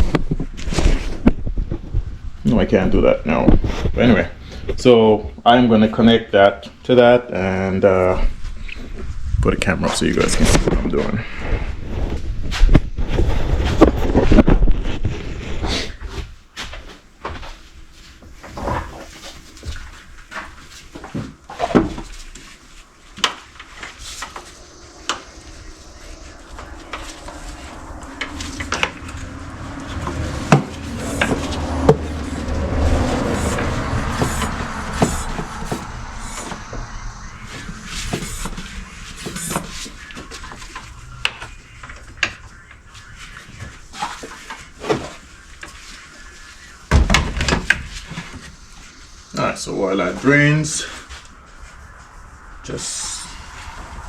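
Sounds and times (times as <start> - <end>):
bumps and rustling: 9.9 - 49.6.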